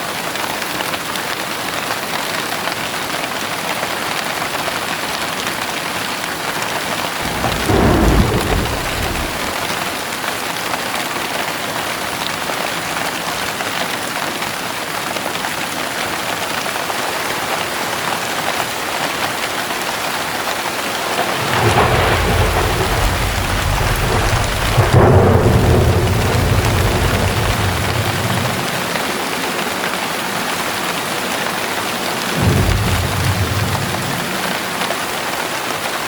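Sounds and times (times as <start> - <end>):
heavy rain pouring: 0.0 - 36.0
deep rumble of thunder: 7.2 - 10.0, 21.1 - 29.6, 32.3 - 34.9
thunder clap: 7.2 - 10.0, 21.1 - 29.8, 32.2 - 35.0.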